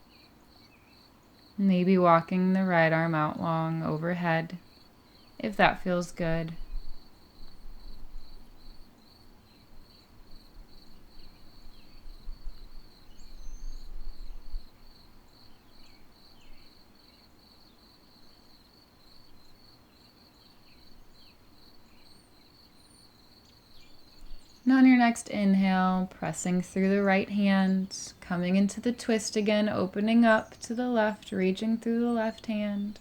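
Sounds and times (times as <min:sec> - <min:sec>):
faint bird chirps: 0:04.7 - 0:26.8.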